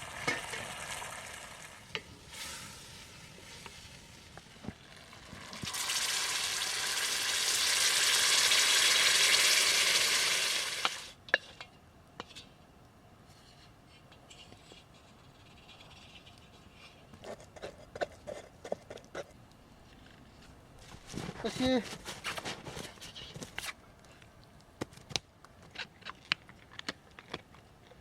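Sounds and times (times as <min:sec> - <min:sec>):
food sizzling in a pan: 0:00.0 - 0:11.2.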